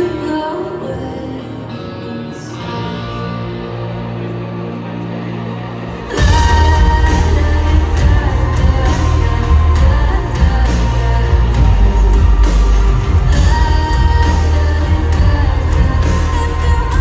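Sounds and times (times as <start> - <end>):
live pop-rock band playing: 0.0 - 17.0
person singing: 0.0 - 17.0
heavy bass and drums: 6.1 - 17.0.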